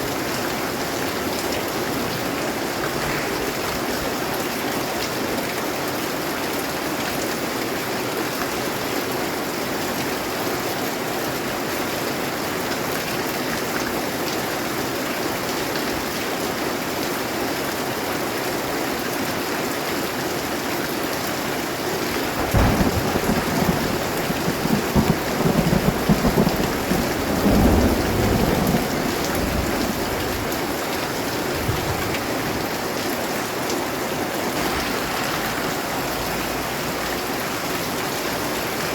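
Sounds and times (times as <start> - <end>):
steady rain hissing: 0.0 - 9.9, 19.2 - 38.9
thunder rumbling: 22.2 - 33.0, 34.1 - 38.9.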